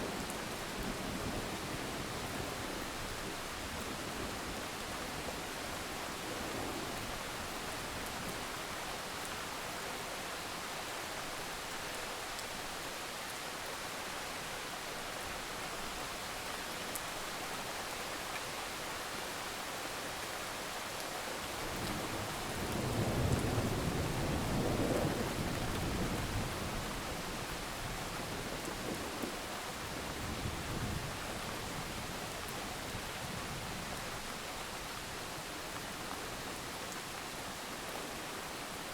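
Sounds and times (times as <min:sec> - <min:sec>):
low rumble of thunder: 0:21.7 - 0:34.3.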